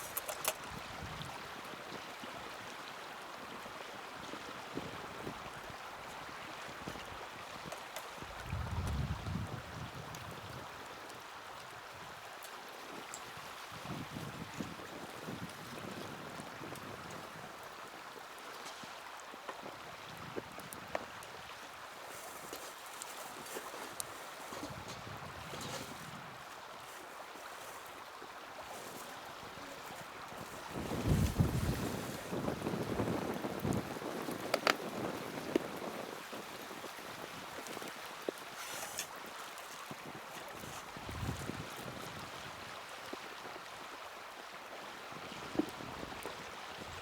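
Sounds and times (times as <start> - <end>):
wind rumbling on microphone: 0.0 - 2.0, 4.2 - 10.9, 13.3 - 17.6, 23.3 - 26.8, 27.9 - 39.0, 39.8 - 44.1, 45.0 - 47.0
wood fire crackling: 22.0 - 26.0, 28.7 - 36.0
fire crackles and pops: 30.4 - 36.0.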